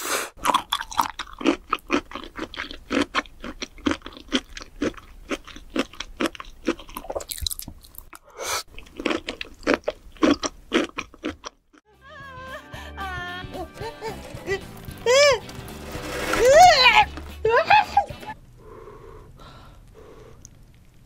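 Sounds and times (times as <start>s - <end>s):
wet crunchy chewing: 0.4s - 11.8s.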